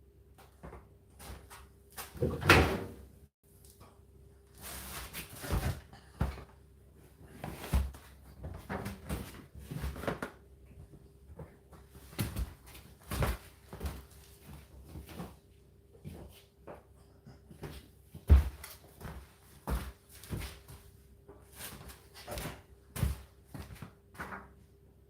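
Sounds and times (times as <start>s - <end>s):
load thudding in dryer drum: 2.2s - 3.1s.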